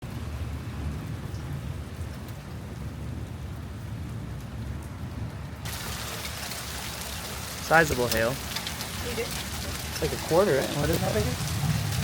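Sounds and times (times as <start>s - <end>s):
rain pouring: 0.0s - 12.0s
deep low rumble: 11.1s - 12.0s.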